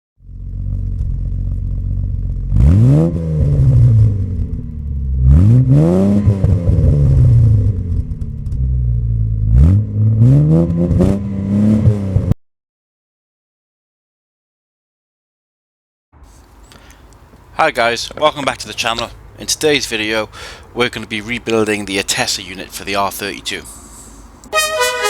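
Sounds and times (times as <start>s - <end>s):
car engine idling and revving: 0.2s - 12.4s.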